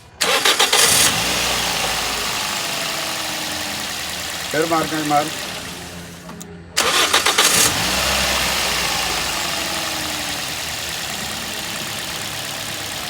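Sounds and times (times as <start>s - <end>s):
car engine starting and running: 0.0s - 13.0s.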